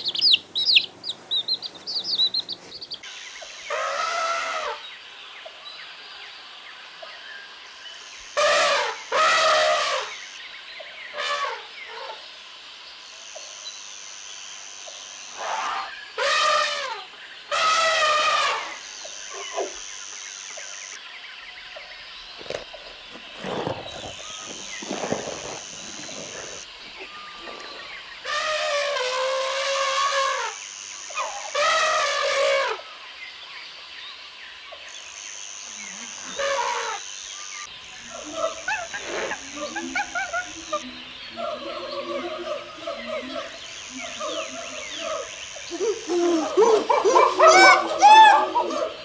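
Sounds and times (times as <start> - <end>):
animal chirping calls: 0.0 - 3.0
faint chirps: 0.0 - 3.7, 18.7 - 28.4.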